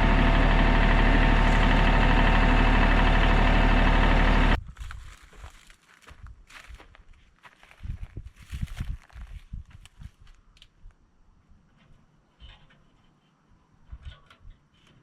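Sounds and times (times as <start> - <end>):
tractor engine running: 0.0 - 4.6.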